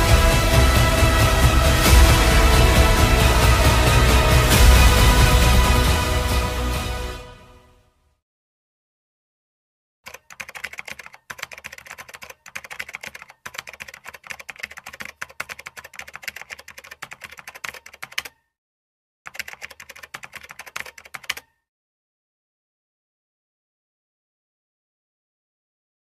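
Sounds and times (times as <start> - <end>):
keyboard typing clicks: 10.1 - 18.4, 19.3 - 21.6.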